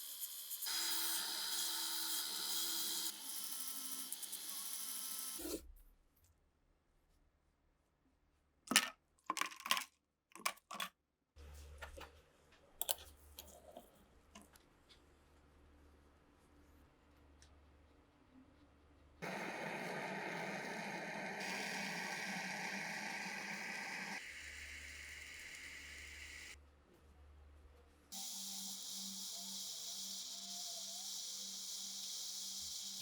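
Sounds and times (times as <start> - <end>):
small power tool whining: 0.5 - 5.6, 19.2 - 26.6, 28.2 - 33.0.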